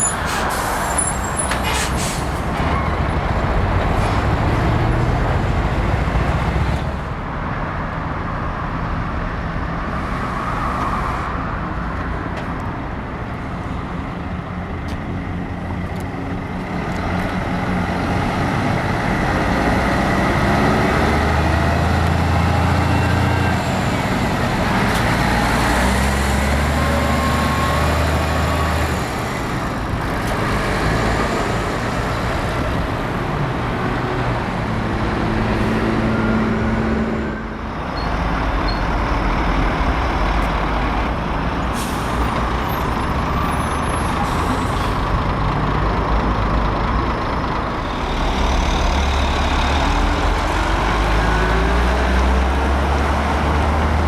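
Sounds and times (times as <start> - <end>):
heavy diesel trucks running: 0.0 - 54.0.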